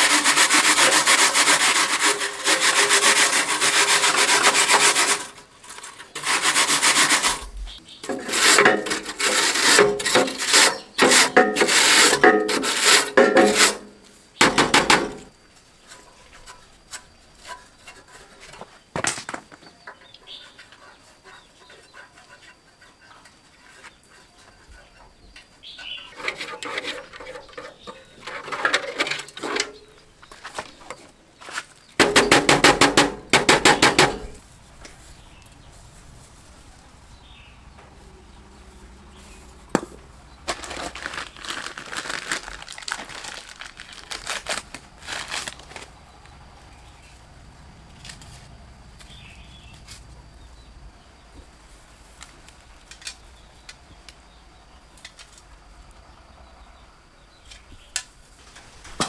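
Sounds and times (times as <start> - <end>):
rasping scraping hand filing: 0.0 - 13.8
sharp knock: 32.0 - 34.4.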